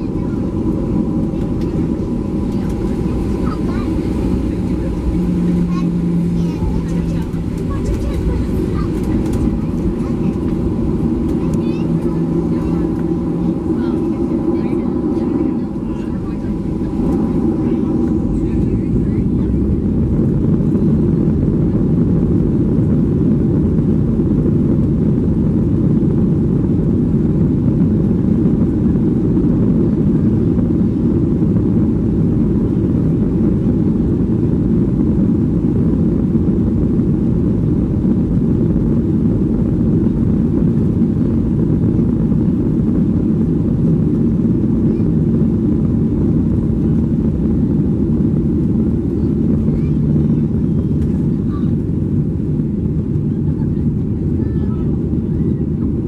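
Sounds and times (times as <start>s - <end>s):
aircraft cabin engine drone: 0.0s - 56.0s.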